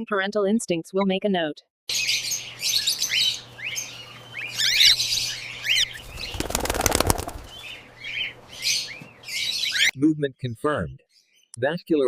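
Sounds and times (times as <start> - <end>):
cockatiels chirping: 2.0 - 9.9
rapid wing flapping: 5.8 - 7.7.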